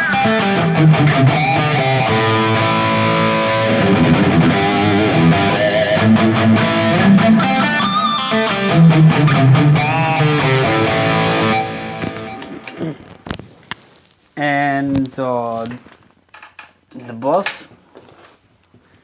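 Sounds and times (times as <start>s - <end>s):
distorted electric guitar: 0.0s - 13.3s.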